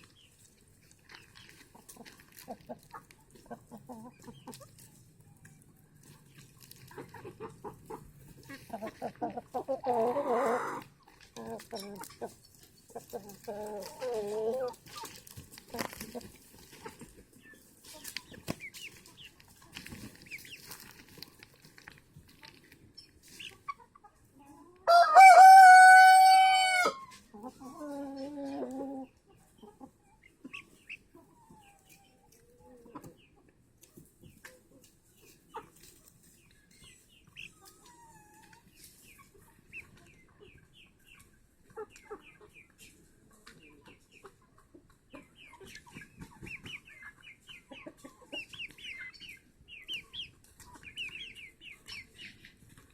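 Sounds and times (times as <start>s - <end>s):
chicken clucks: 0.0s - 52.9s
rooster crowing: 24.9s - 27.0s.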